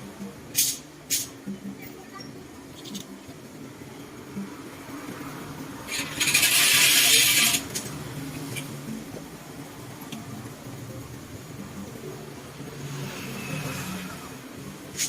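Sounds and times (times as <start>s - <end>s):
loud hiss: 0.5s - 1.3s.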